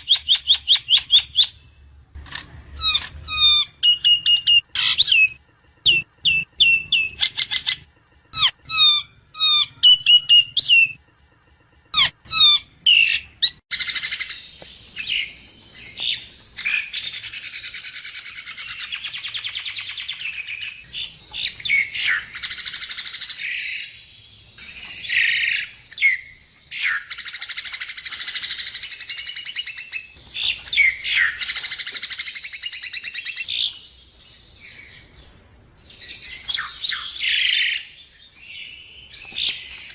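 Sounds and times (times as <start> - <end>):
bird whistling: 0.0 - 1.6, 2.8 - 11.0, 11.9 - 24.0, 24.6 - 33.8, 34.7 - 39.9.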